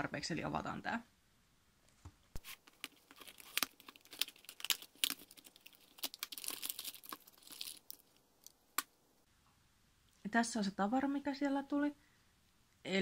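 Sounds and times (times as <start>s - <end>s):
plastic packaging tearing and crinkling: 2.4s - 8.6s.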